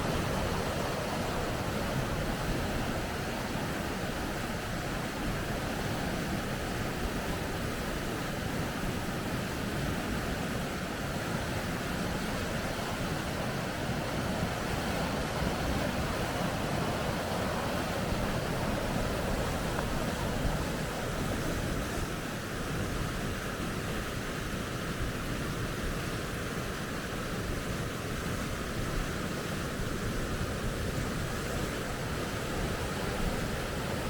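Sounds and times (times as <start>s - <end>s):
river rapids roaring: 0.0s - 25.0s, 26.0s - 34.0s.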